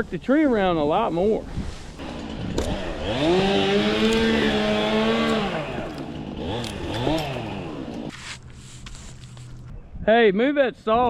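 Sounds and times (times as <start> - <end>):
chainsaw revving: 2.0 - 8.1.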